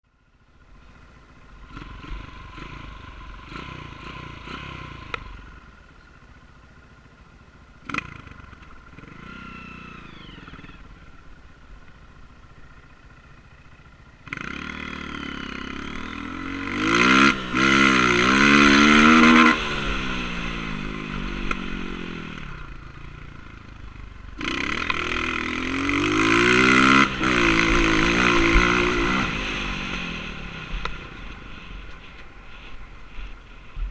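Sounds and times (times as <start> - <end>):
dirt bike engine revving: 1.5 - 5.6, 7.8 - 11.2, 14.2 - 33.4.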